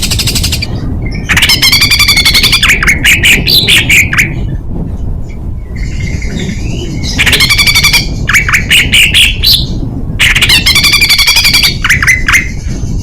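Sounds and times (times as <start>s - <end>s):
sharp down-slurred bird calls: 0.0s - 4.5s, 5.7s - 13.0s
songbird rattling trills: 0.0s - 4.5s, 5.6s - 13.0s.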